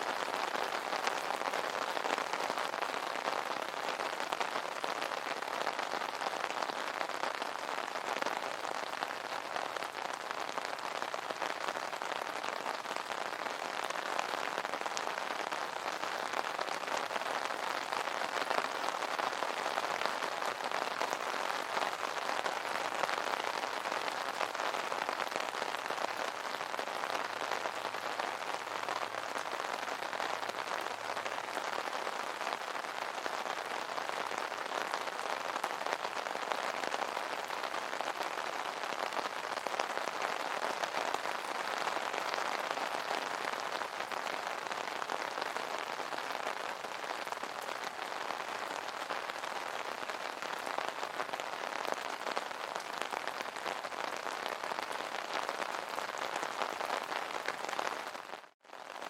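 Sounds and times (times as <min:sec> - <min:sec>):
rain pattering on umbrella: 0:00.0 - 0:59.0.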